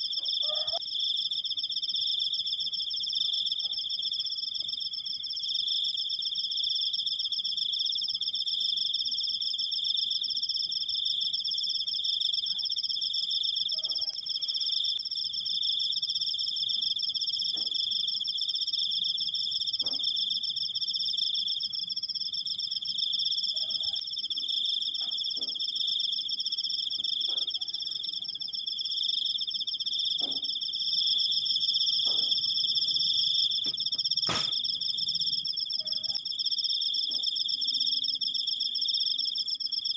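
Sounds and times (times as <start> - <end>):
cricket trilling: 0.0 - 39.9
sharp click: 33.7 - 34.6.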